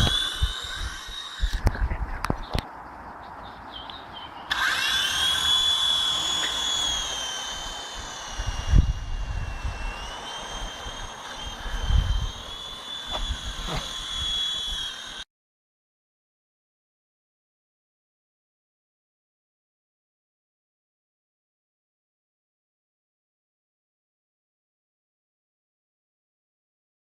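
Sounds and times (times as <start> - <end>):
toy helicopter motors whining: 0.0 - 2.6, 4.5 - 15.3.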